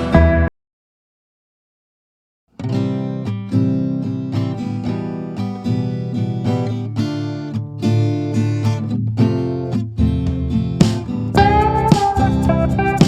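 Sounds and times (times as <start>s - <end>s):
strummed acoustic guitar: 0.0s - 0.5s, 2.6s - 13.0s.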